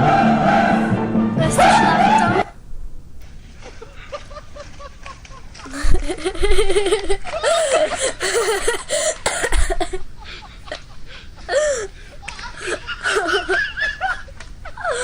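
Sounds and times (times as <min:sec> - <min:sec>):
person laughing hard: 0:03.6 - 0:15.0.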